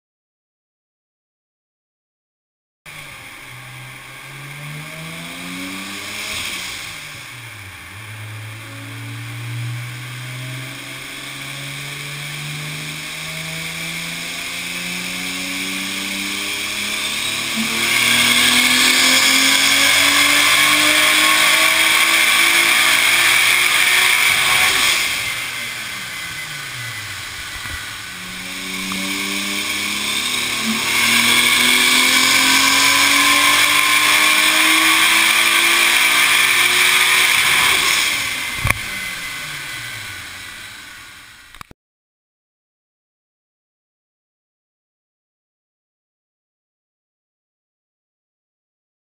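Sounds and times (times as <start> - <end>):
car engine accelerating: 2.9 - 41.7
turbo boost hissing rush: 21.8 - 32.8.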